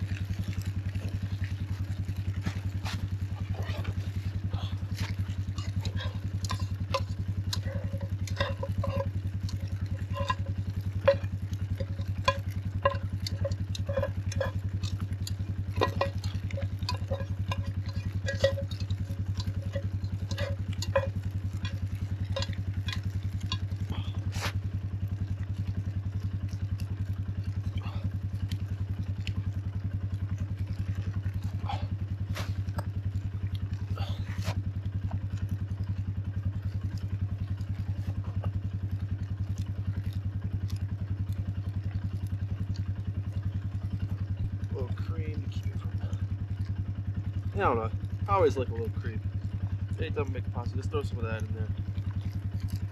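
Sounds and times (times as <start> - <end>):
low hum: 0.0 - 52.9
metal utensil scraping a pot: 5.2 - 24.5.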